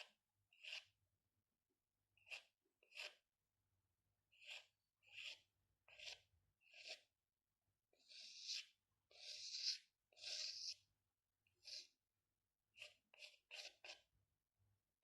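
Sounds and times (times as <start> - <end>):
pencil strokes scratching on paper: 0.0 - 0.9, 2.2 - 3.2, 4.3 - 7.1, 7.9 - 10.9, 11.5 - 12.0, 12.7 - 14.1.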